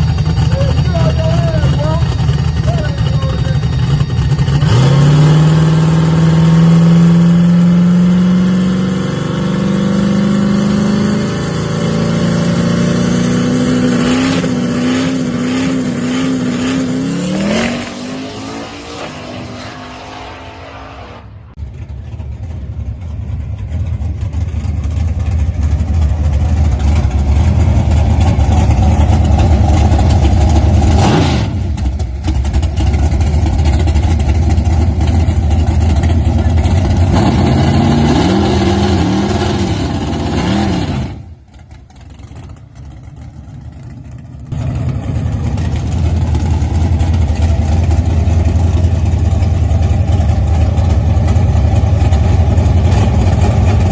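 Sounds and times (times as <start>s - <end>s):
low engine rumble: 0.0s - 6.5s, 19.2s - 40.1s, 41.1s - 53.9s
race car engine accelerating: 0.0s - 22.2s, 24.9s - 41.7s.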